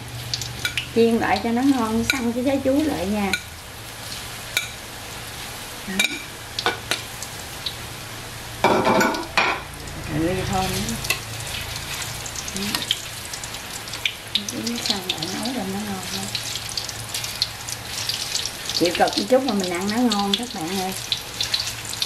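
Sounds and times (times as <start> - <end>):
deep-frying sizzle in oil: 0.0 - 22.0.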